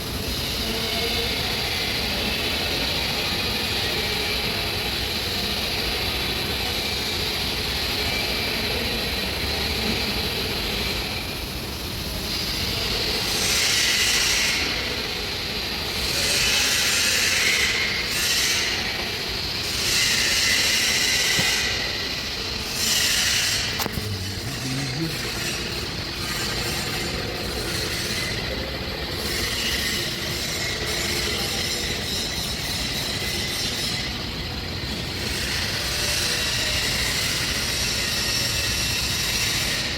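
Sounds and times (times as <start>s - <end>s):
welding arc hissing buzz: 12.0s - 27.1s.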